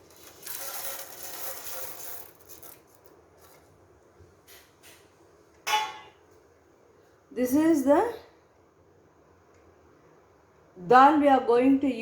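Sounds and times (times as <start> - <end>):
rubbing and scraping: 0.0 - 3.6.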